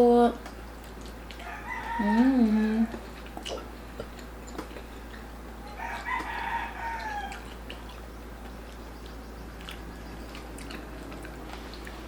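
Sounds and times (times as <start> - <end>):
small eating sounds: 0.0 - 12.0
steady low hum: 0.0 - 12.0
rooster crowing: 1.4 - 3.0, 5.6 - 7.4.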